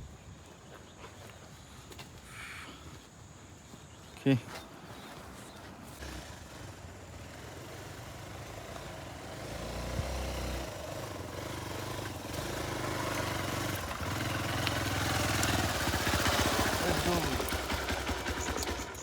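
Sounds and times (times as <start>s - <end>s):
motorcycle engine at low revs: 4.9s - 19.0s.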